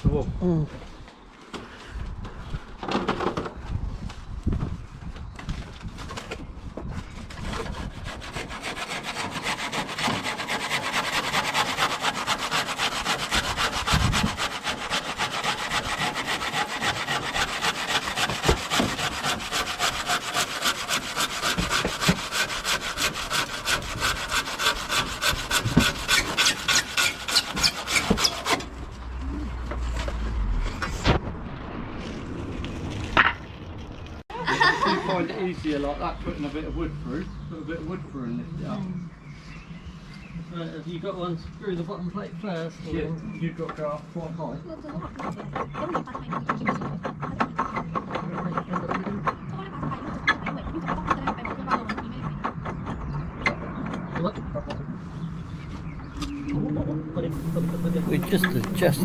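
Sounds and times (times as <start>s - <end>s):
hand saw cutting wood: 7.2s - 28.8s, 57.3s - 59.0s.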